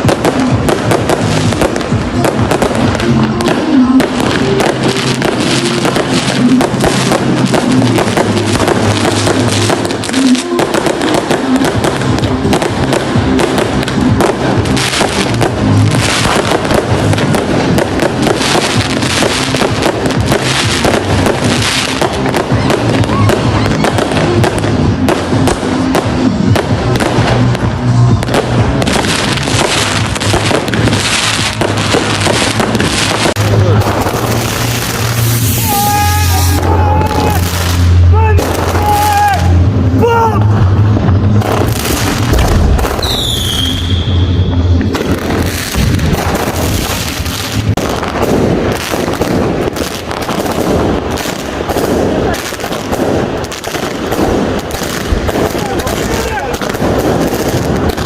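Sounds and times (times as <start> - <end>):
dense crackling hiss: 0.0 - 58.0
fireworks and firecrackers banging: 0.0 - 58.0
firework whistle falling in pitch: 42.9 - 44.6.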